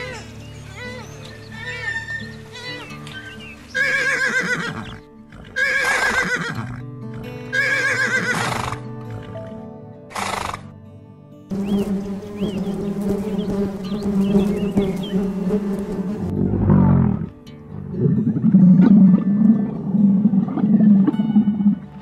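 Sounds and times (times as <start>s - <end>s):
horse whinnying: 3.8s - 9.4s
honeybees buzzing: 11.5s - 16.4s.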